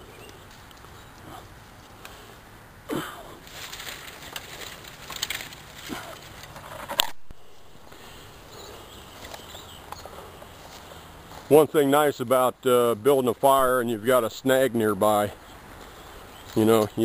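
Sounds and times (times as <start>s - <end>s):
dry sticks cracking and rustling: 0.2s - 2.3s, 3.4s - 11.6s, 15.6s - 17.0s.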